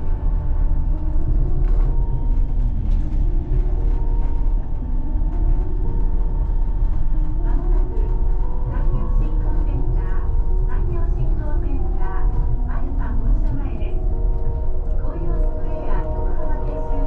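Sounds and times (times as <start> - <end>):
train rumbling on guideway: 0.0 - 17.0
faint clicks and rattles: 0.1 - 17.0.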